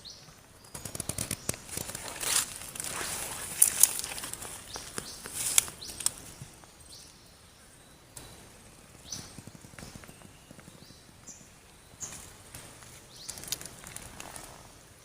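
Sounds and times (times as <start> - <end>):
sharp clicks: 0.6 - 6.4
crisp rustling and crackling: 0.7 - 6.6, 12.0 - 14.8.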